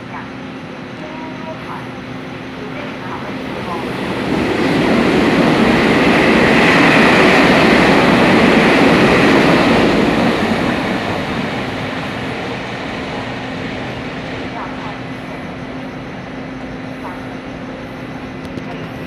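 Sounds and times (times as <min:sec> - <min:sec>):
train rumble with wheel clatter: 0:00.0 - 0:19.0.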